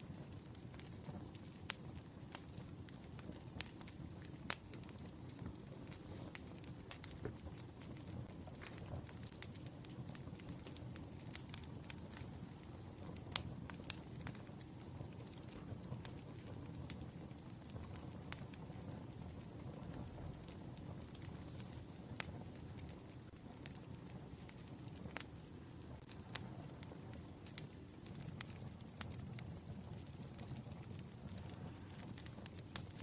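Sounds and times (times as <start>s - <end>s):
sharp pops of fire: 0.0s - 33.0s
wood fire crackling: 0.0s - 33.0s.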